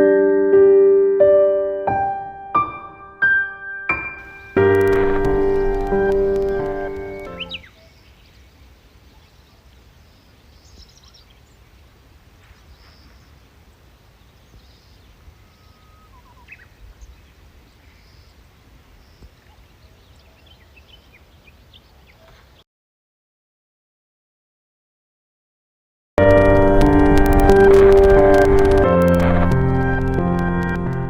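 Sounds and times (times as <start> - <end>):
bird chirps: 4.1 - 11.8, 14.1 - 18.4
low wind rumble: 4.2 - 21.7, 26.2 - 31.0
faint bird calls: 5.1 - 22.6.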